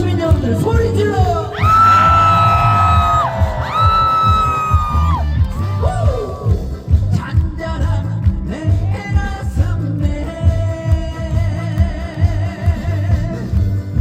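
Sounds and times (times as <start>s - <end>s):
thumping beat: 0.0s - 14.0s
high-pitched held cry: 1.6s - 6.5s
man singing over band track: 5.8s - 13.6s.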